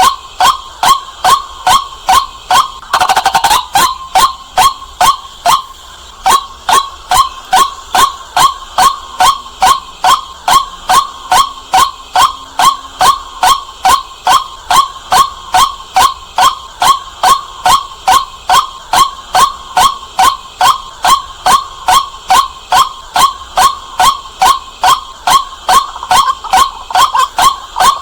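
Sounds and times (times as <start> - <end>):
waterhen repeated kwak calls: 0.0 - 28.0.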